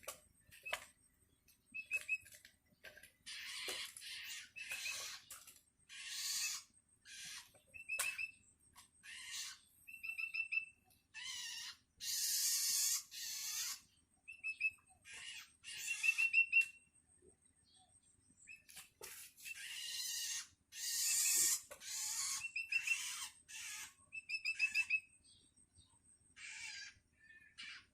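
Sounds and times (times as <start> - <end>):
bird chick harsh begging calls: 11.2 - 13.8, 19.6 - 24.9, 26.4 - 27.0.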